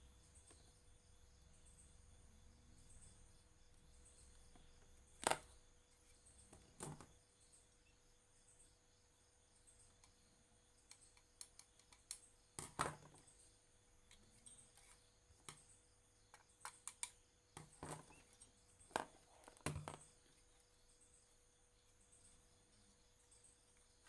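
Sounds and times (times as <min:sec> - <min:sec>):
light clicks and taps of tools: 0:10.8 - 0:13.0, 0:16.3 - 0:20.5.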